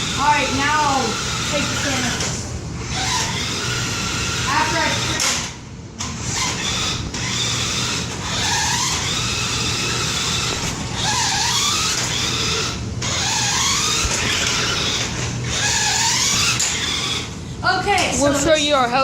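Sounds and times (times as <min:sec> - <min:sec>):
toy car electric motor whining: 0:00.0 - 0:17.4
tyres scrabbling on concrete: 0:06.3 - 0:17.3.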